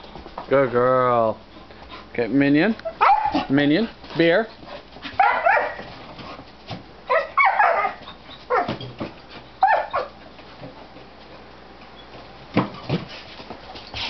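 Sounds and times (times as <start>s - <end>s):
dog yipping and whining: 2.8s - 3.5s, 5.2s - 5.8s, 7.1s - 8.9s, 9.6s - 10.2s.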